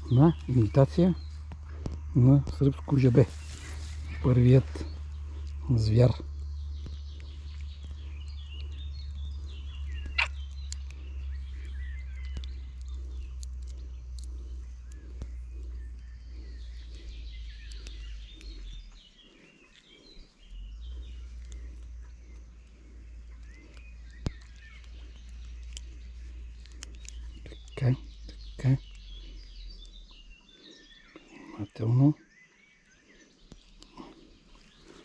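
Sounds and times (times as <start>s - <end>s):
steady low rumble: 0.0s - 31.4s
birds chirping and singing: 0.0s - 35.0s
sharp clicks: 9.9s - 16.0s, 23.2s - 29.1s.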